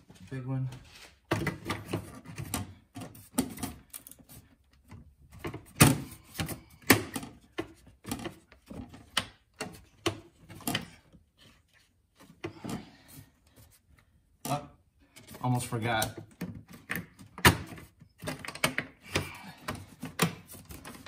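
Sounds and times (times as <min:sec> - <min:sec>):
plastic covers clicking and rattling: 0:01.3 - 0:04.2, 0:04.8 - 0:11.2, 0:14.4 - 0:21.0.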